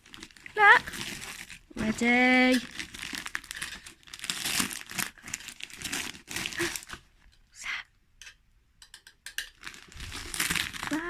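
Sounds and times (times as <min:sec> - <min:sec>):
wrapping paper crinkling and tearing: 0:00.0 - 0:07.1, 0:09.5 - 0:11.0.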